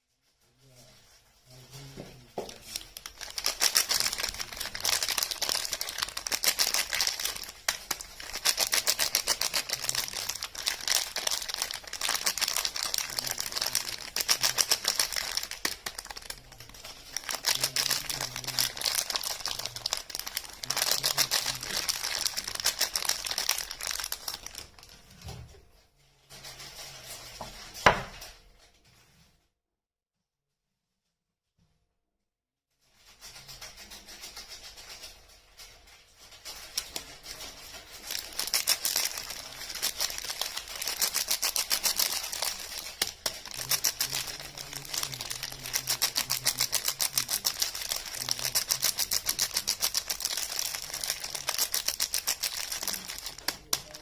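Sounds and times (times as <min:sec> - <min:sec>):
soap wrapper crinkling and tearing: 0:02.5 - 0:25.0, 0:37.6 - 0:54.0.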